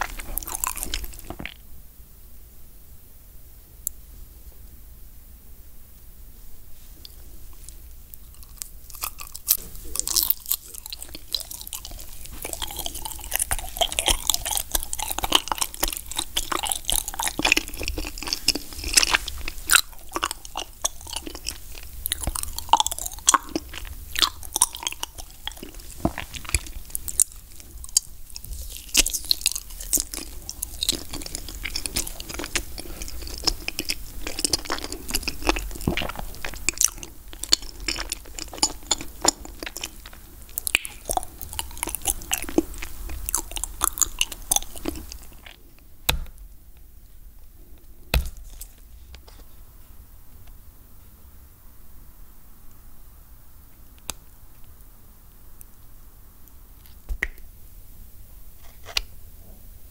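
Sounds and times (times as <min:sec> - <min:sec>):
wet chewing mouth sounds: 0:00.0 - 0:01.6, 0:07.0 - 0:45.8.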